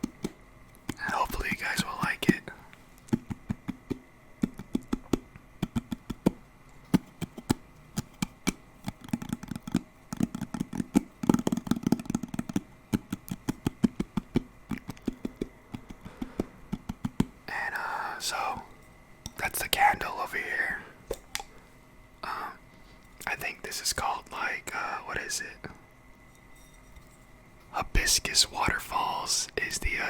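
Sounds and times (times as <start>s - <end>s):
fingers tapping on hard object: 3.1s - 17.3s.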